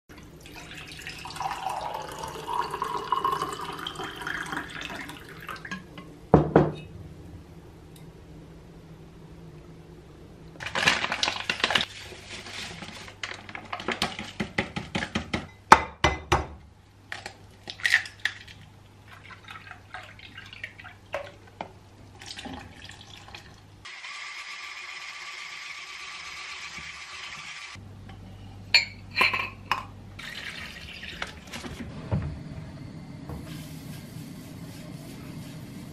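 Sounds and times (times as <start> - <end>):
dishes and utensils clattering: 28.8 - 29.9.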